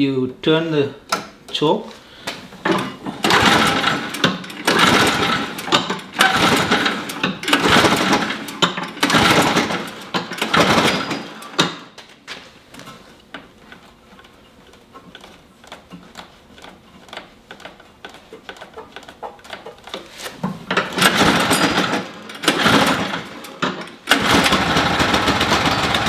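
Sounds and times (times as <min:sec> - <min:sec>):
small engine running rough: 0:03.2 - 0:11.1, 0:24.1 - 0:26.0.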